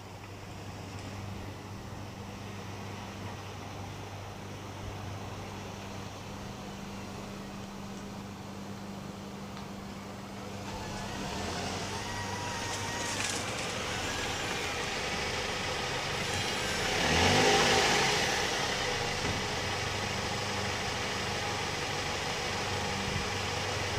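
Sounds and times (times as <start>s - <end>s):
car engine revving: 10.5s - 23.9s.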